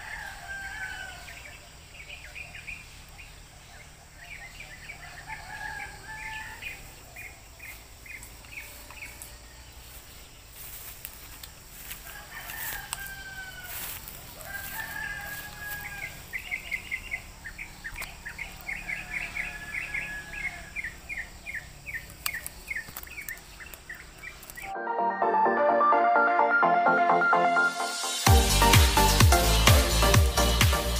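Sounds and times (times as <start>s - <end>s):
birds chirping: 0.0s - 24.8s.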